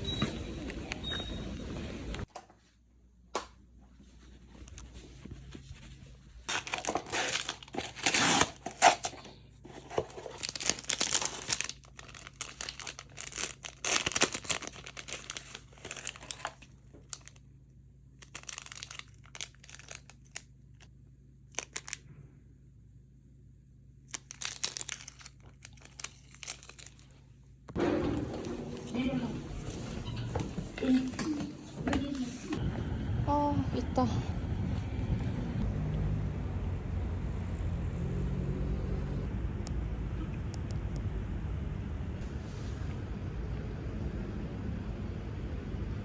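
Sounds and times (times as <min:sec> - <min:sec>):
packaging crinkling and tearing: 0:06.4 - 0:17.4, 0:18.2 - 0:20.9, 0:21.5 - 0:22.0, 0:24.1 - 0:27.2.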